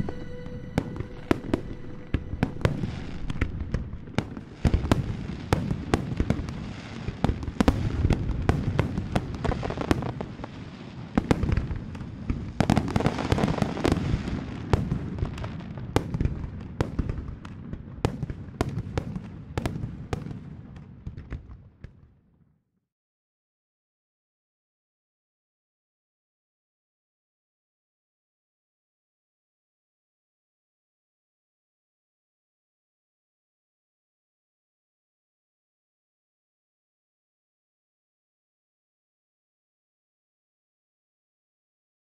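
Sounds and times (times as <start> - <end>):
fireworks bursting and crackling: 0.0 - 22.4.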